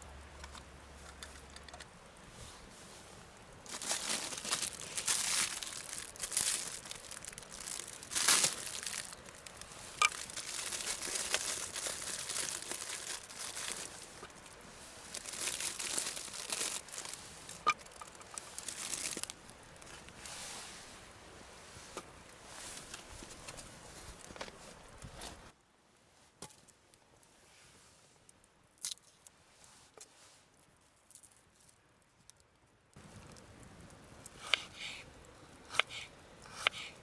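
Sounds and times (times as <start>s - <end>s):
packaging crinkling: 3.6s - 20.0s.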